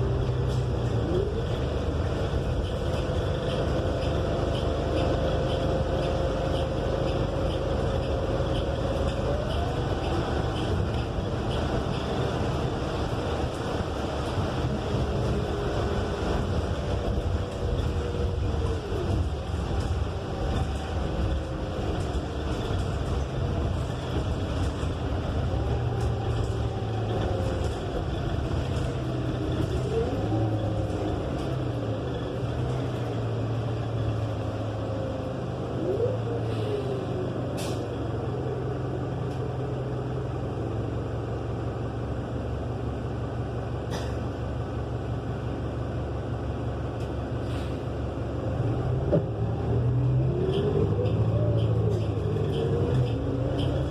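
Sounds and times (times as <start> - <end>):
drivetrain whine: 0.0 - 36.4, 48.0 - 53.9
bus engine running: 0.0 - 53.9.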